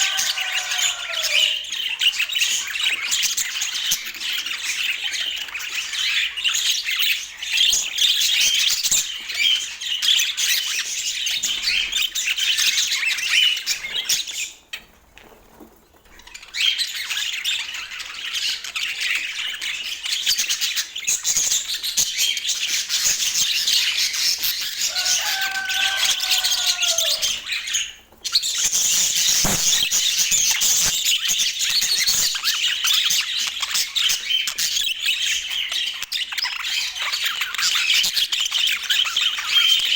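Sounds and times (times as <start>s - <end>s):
budgerigars chattering: 29.4s - 30.1s.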